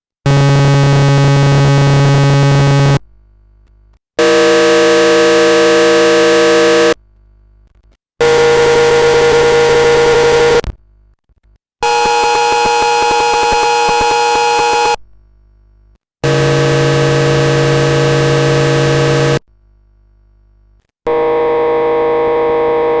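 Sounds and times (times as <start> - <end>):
harsh buzzing synth tones: 0.3 - 3.0, 4.2 - 7.0, 8.2 - 10.7, 11.8 - 15.0, 16.2 - 19.4, 21.1 - 23.0.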